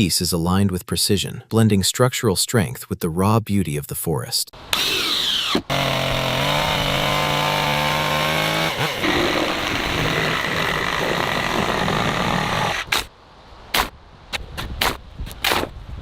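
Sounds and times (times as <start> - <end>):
chainsaw cutting log: 4.7 - 13.1.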